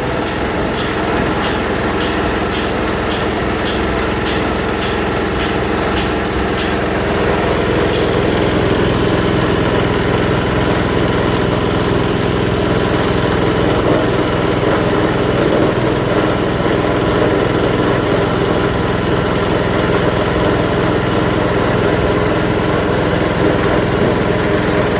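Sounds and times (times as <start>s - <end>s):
grinding machine running: 0.0s - 24.9s
sharp ticks: 0.8s - 7.0s.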